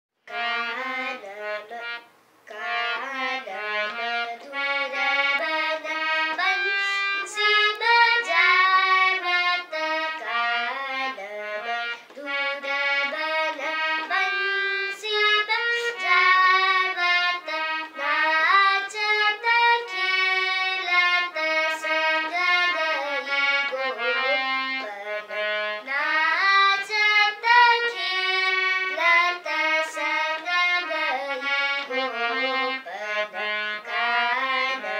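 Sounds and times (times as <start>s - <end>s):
girl singing: 0.3s - 34.9s.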